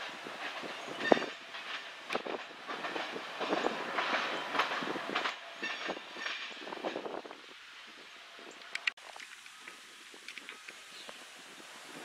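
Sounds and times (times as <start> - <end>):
train wheels clacking over rail joints: 0.0 - 7.4.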